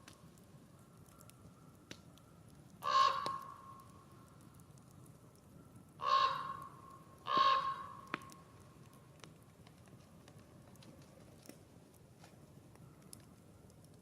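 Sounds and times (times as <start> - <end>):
campfire pop: 0.0 - 5.4, 6.6 - 14.0
campfire crackling: 0.0 - 14.0
crow cawing: 2.8 - 3.8, 6.0 - 8.2.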